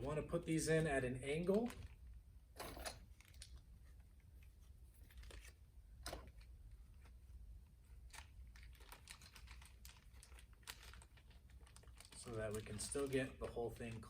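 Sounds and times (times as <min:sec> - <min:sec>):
plastic bag rustling and crinkling: 0:01.2 - 0:02.1, 0:03.0 - 0:03.7, 0:08.0 - 0:14.0.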